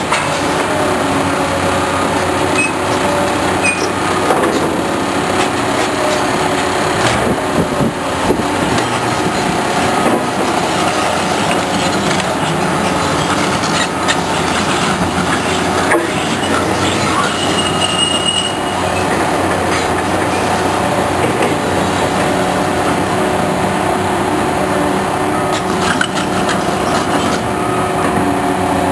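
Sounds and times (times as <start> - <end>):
heavy machinery running: 0.0 - 28.9
metallic squeals: 2.5 - 4.0, 11.4 - 19.2.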